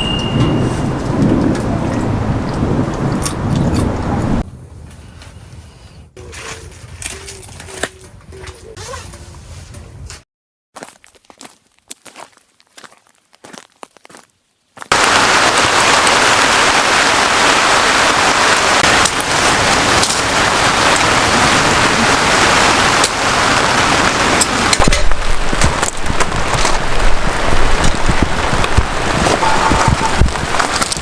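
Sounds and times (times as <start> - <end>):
heavy rain pouring: 0.0 - 4.4, 14.9 - 31.0
wind gusts rumbling: 0.0 - 6.2, 14.9 - 31.0.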